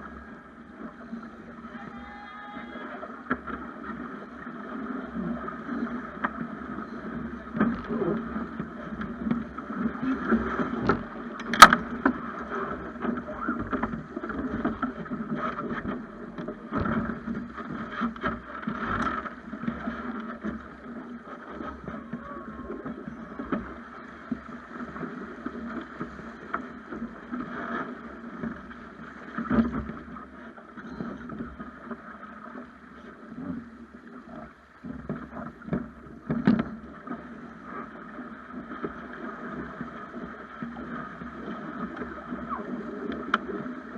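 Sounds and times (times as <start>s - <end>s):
wind: 0.0s - 43.9s
water slapping against boat hull: 1.9s - 32.7s, 33.3s - 43.9s
sharp knocks on boat: 10.6s - 12.2s, 15.5s - 19.3s, 34.9s - 36.8s.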